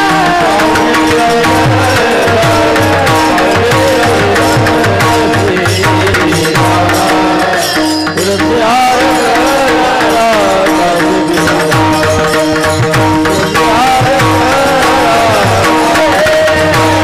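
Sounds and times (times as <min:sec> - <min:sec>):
held drone tones: 0:00.0 - 0:17.0
person singing devotional song: 0:00.0 - 0:17.0.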